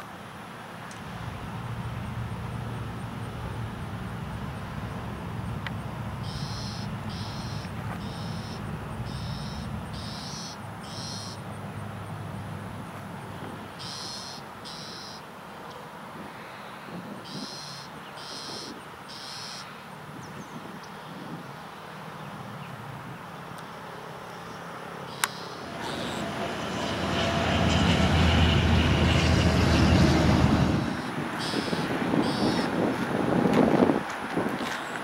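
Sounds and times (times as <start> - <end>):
low rumble: 25.6 - 31.1.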